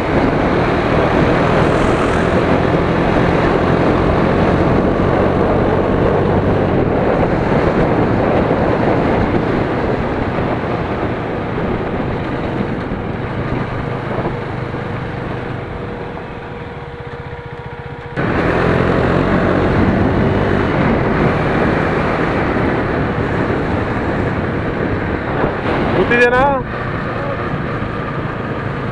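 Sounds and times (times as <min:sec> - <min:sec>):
motorcycle engine running: 0:00.0 - 0:08.2
wind rush on microphone: 0:00.0 - 0:17.5, 0:18.2 - 0:28.9
steady whine: 0:00.9 - 0:04.9.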